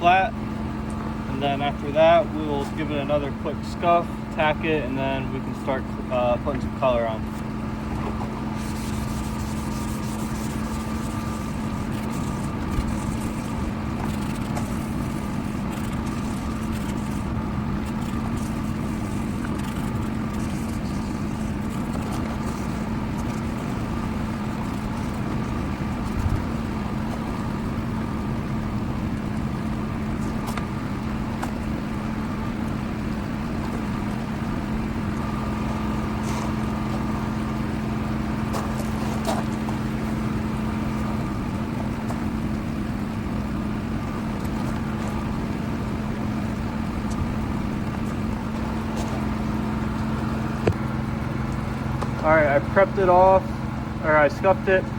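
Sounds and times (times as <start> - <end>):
motor humming: 0.0 - 54.9.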